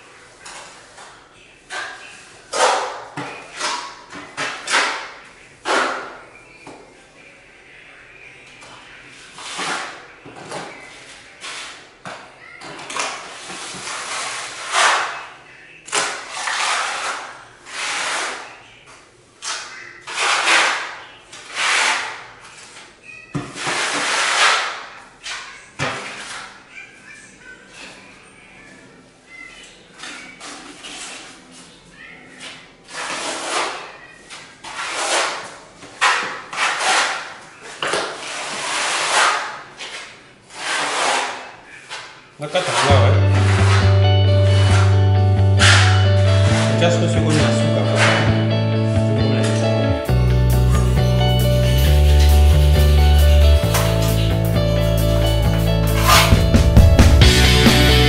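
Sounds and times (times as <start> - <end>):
hand tool scraping concrete: 13.3 - 15.3, 15.9 - 18.5, 19.4 - 22.3, 23.6 - 26.5, 32.9 - 33.9, 34.6 - 45.0, 45.6 - 48.3, 55.5 - 56.5.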